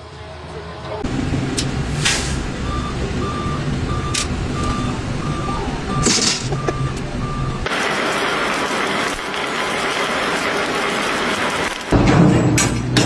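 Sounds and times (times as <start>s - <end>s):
reversing alarm beeping: 1.0s - 7.7s
vehicle engine running: 1.0s - 11.9s
short hisses: 1.9s - 2.5s.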